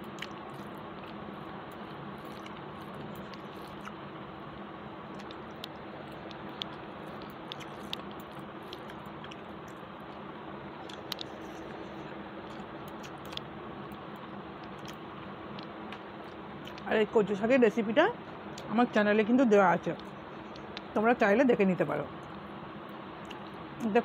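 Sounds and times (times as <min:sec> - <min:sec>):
person chewing: 0:00.0 - 0:04.0, 0:05.1 - 0:10.2, 0:10.8 - 0:13.5, 0:14.6 - 0:16.9.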